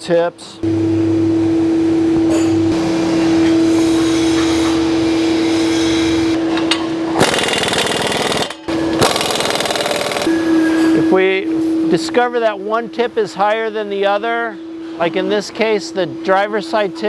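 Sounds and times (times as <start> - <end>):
steady hum: 0.1 - 17.0
power tool rattling: 6.6 - 10.3.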